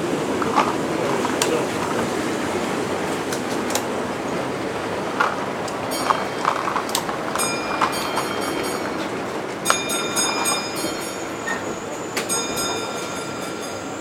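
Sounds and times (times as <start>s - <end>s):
wheels clicking over track: 0.0s - 14.0s
high ringing tone: 5.9s - 14.0s.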